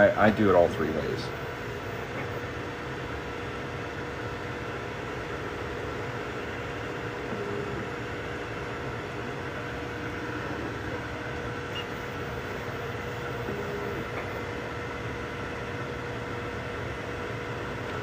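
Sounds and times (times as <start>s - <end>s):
fans whirring: 0.0s - 18.0s
stepper motor tones: 0.0s - 18.0s.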